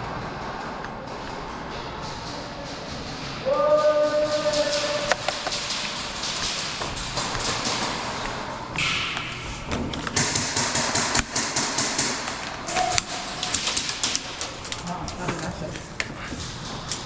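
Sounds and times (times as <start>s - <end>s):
airsoft gun shots: 10.2s - 14.3s.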